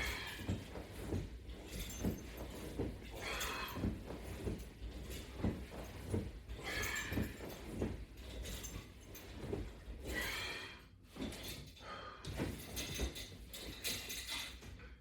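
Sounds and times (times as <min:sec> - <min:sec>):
forceful breaths: 0:00.0 - 0:01.0, 0:03.1 - 0:04.6, 0:06.5 - 0:07.8, 0:10.0 - 0:11.0
soft thumps and rustling: 0:00.0 - 0:10.5, 0:12.3 - 0:14.8.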